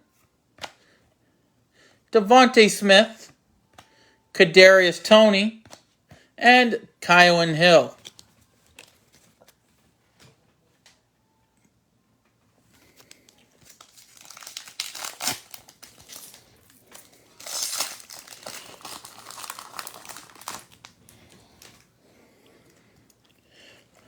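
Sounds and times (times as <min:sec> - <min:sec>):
plastic wrapper tearing and crinkling: 0:12.9 - 0:21.8.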